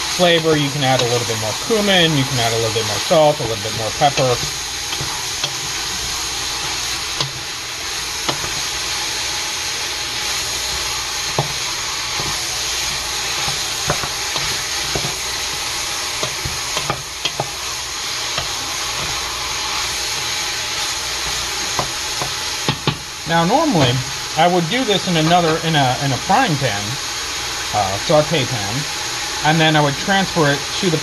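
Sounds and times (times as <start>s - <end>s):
food sizzling in hot oil: 0.0s - 31.0s
wooden spoon knocking on pot: 11.3s - 11.6s, 12.2s - 15.2s, 16.2s - 17.6s, 21.7s - 23.1s.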